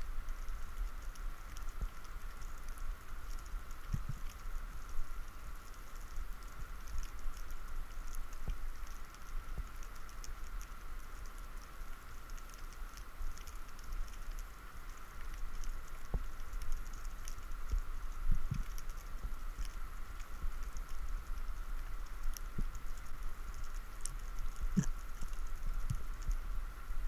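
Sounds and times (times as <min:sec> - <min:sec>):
underwater crackle of tiny clicks: 0:00.0 - 0:27.0.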